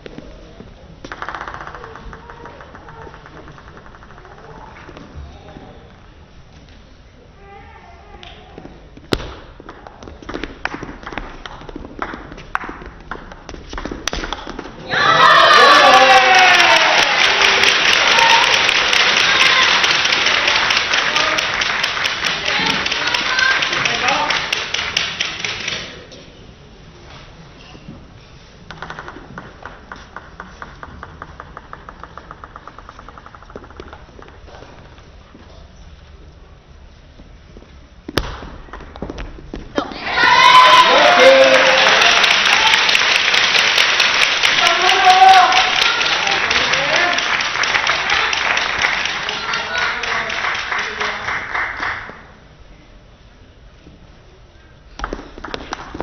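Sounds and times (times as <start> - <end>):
table tennis ball clicking: 1.0 - 5.0, 28.7 - 34.5.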